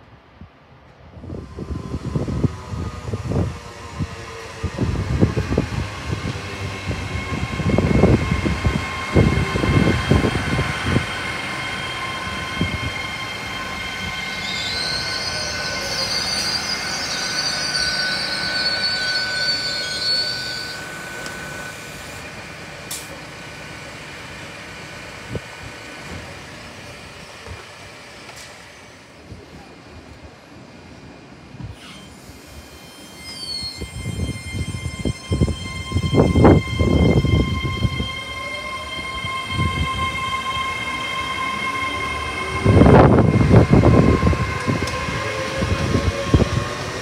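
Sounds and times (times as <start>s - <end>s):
steady whining tones: 1.3s - 29.2s, 31.7s - 47.0s
high wheel squeal: 4.7s - 22.4s, 31.7s - 47.0s.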